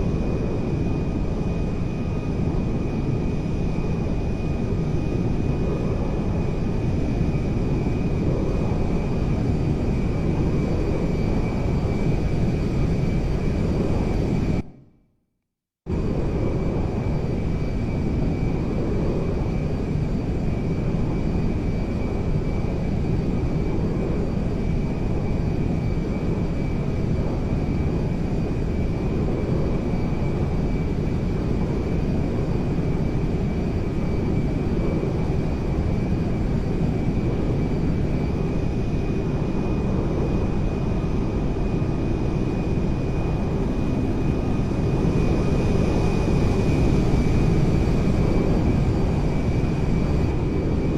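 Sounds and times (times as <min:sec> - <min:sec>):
airplane engines droning: 0:00.0 - 0:15.0, 0:15.9 - 0:50.9
thin steady whine: 0:15.9 - 0:50.9.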